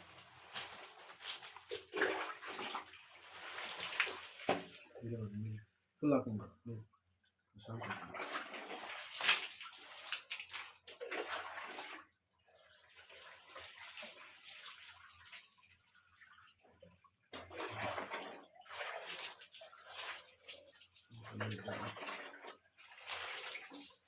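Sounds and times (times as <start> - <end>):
water trickling: 0.0 - 24.0
water splashing over hair: 0.5 - 5.3, 7.8 - 12.1, 17.3 - 24.0.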